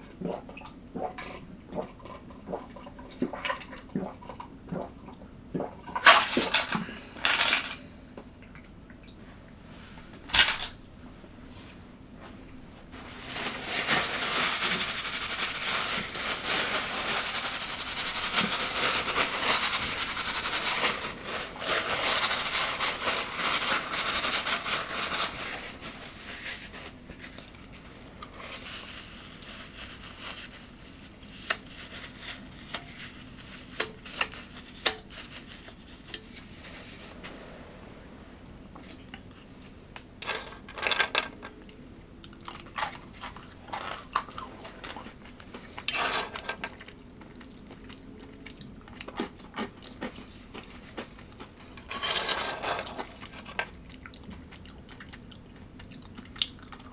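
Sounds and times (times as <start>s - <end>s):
crunchy food being chewed: 41.6s - 45.9s, 46.6s - 51.9s, 52.9s - 56.9s.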